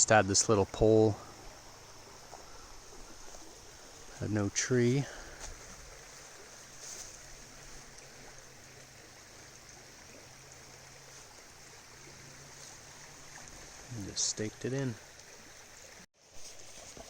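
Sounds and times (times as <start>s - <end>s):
river water flowing: 0.0s - 17.0s.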